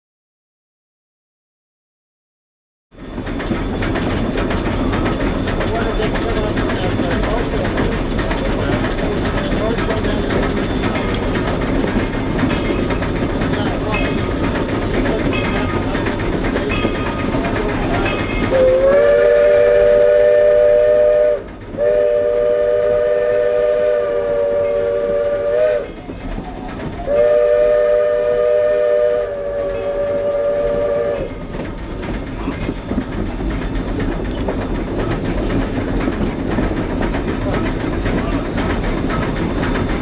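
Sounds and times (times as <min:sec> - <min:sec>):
moving train rumble: 0:02.9 - 0:40.0
steam whistle chord blasts: 0:18.5 - 0:25.9, 0:27.1 - 0:31.3.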